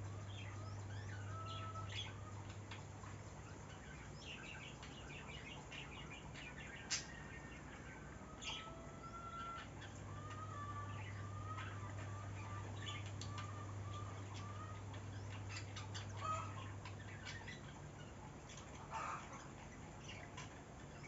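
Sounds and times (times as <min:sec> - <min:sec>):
birds chirping and clucking: 0:00.0 - 0:21.0
faint low hum: 0:00.0 - 0:21.0.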